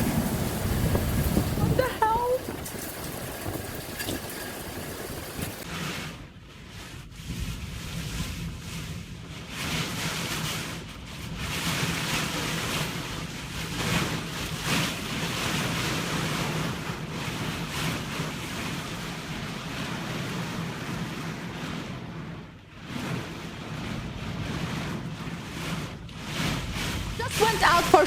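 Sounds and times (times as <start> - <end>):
rushing water: 0.0 - 5.6, 26.5 - 28.0
storm wind gusting on microphone: 0.0 - 28.0.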